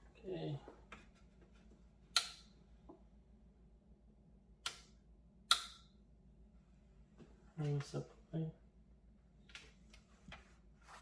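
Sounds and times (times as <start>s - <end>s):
cable connectors clicking into computer: 4.6s - 5.9s.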